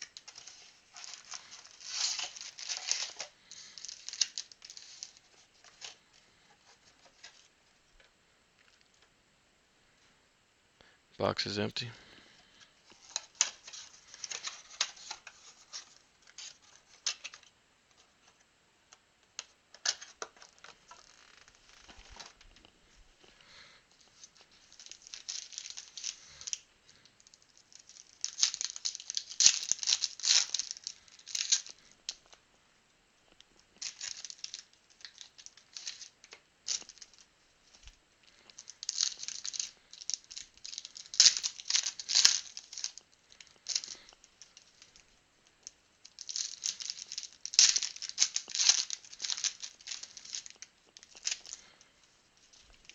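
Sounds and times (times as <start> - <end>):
cards being handled: 0.0 - 6.0, 46.1 - 51.8
plastic wrappers crinkling and tearing: 0.0 - 7.5, 12.8 - 18.4, 19.4 - 32.4, 33.4 - 52.9.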